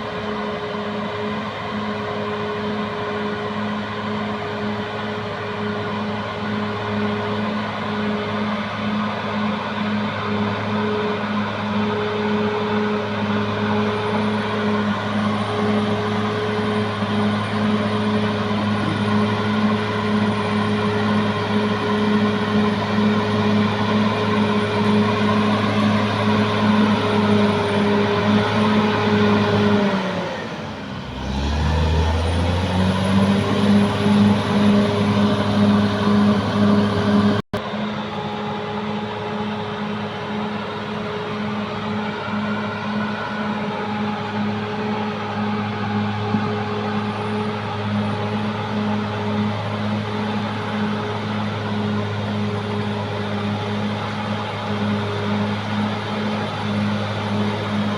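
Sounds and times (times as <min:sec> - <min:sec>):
bulldozer diesel engine running: 0:00.0 - 0:57.9.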